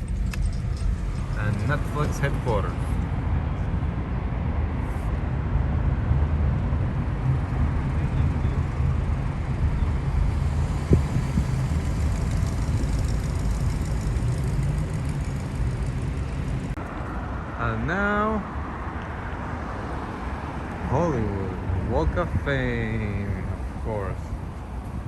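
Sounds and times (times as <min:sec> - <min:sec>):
car interior road rumble: 0:00.0 - 0:17.0.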